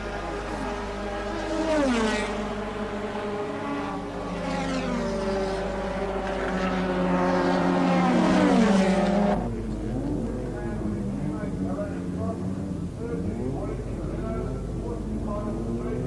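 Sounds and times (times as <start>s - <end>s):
racing car engines: 0.0s - 16.0s.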